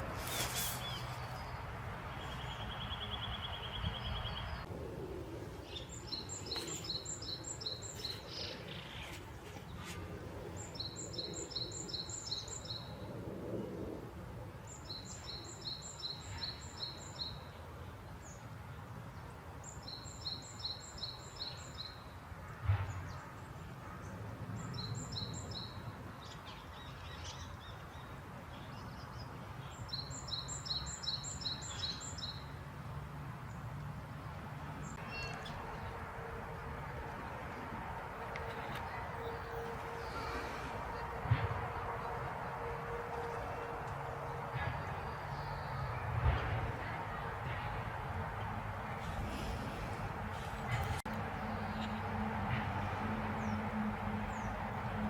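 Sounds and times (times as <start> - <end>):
outdoor background noise: 0.0 - 55.0
songbird singing: 0.8 - 4.7, 5.5 - 9.9, 24.6 - 32.6, 34.8 - 36.7.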